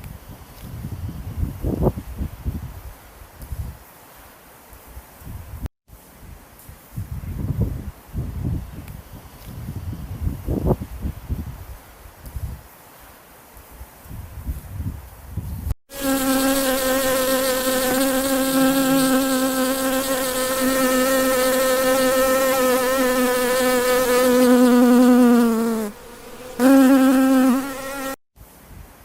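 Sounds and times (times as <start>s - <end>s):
insect buzzing: 15.9s - 28.2s.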